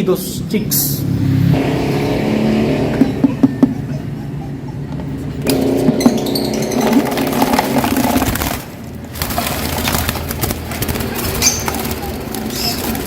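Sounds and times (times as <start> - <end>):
lovebirds chattering and squawking: 3.0 - 5.4, 11.0 - 13.0.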